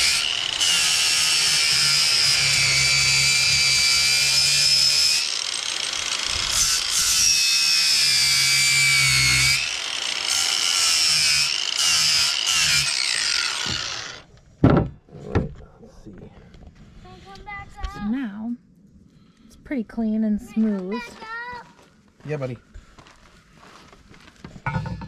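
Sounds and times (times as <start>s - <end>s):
angle grinder grinding metal: 0.0s - 14.3s.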